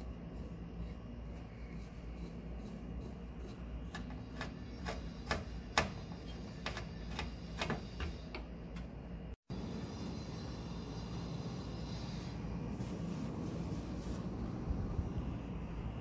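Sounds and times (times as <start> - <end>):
steady low rumble: 8.9 - 16.0.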